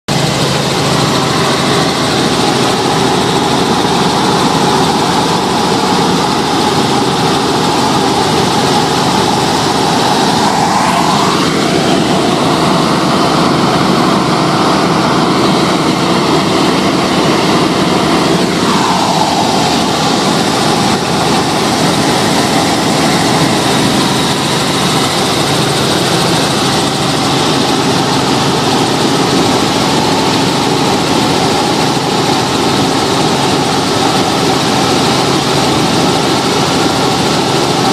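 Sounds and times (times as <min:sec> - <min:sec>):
helicopter engine and rotor drone: 0:00.1 - 0:37.9.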